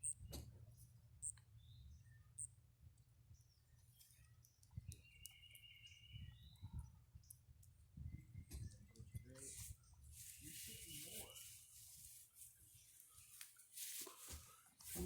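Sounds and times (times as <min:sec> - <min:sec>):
faint clicks: 0:04.0 - 0:05.8.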